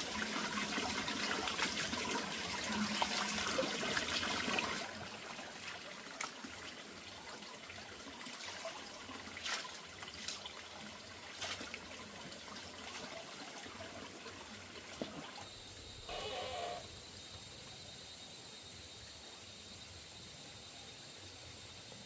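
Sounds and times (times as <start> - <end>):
water trickling and splashing: 0.0 - 16.8
short pitched call: 16.1 - 16.8.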